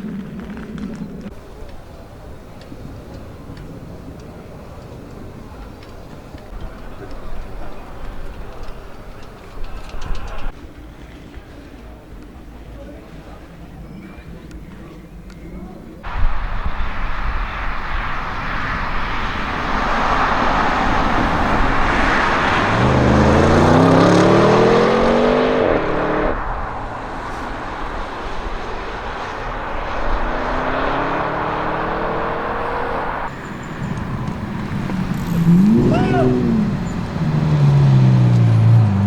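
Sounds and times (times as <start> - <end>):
road and wind noise: 0.0 - 39.0
car engine accelerating hard: 16.1 - 39.0.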